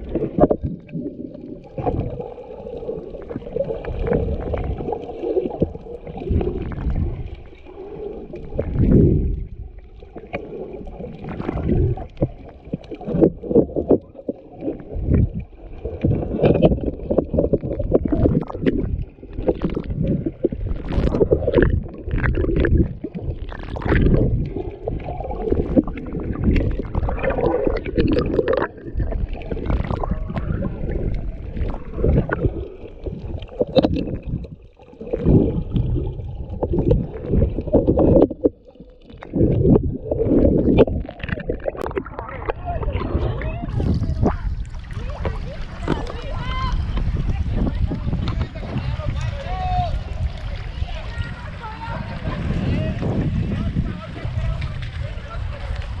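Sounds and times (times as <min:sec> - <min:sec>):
muffled water sloshing: 0:00.0 - 0:56.0.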